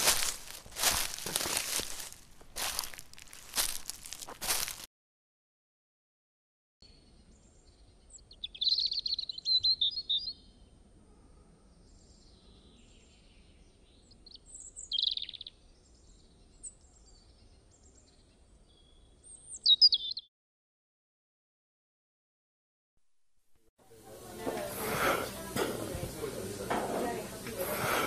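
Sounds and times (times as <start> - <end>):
birds chirping and singing: 0.0 - 4.7, 6.8 - 10.6, 11.8 - 20.3.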